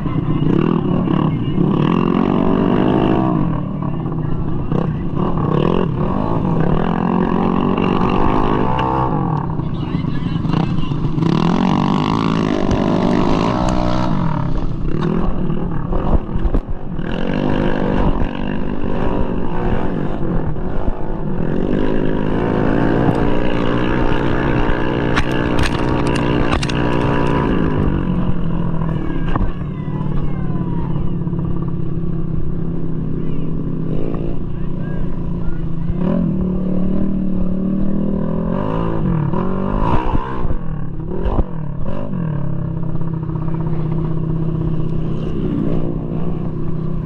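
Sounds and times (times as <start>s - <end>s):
scooter engine revving: 0.0s - 47.0s
sharp clatters: 24.1s - 28.2s.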